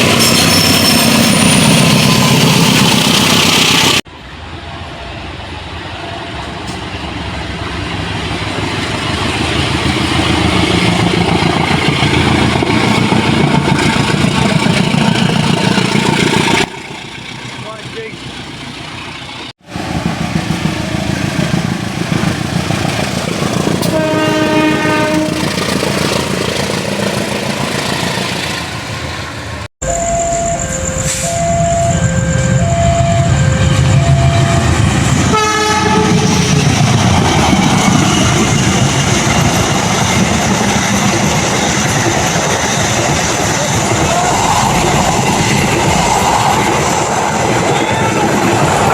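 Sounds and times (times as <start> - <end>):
train track rumble: 0.0 - 48.9
train horn: 23.8 - 25.5, 35.3 - 36.6
two-tone alternating signal: 29.8 - 34.8.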